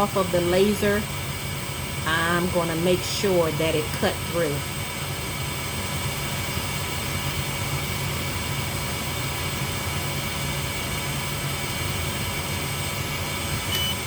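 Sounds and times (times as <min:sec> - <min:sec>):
laser engraver fan hum and hiss: 0:00.0 - 0:14.0
short high beep: 0:13.7 - 0:14.0.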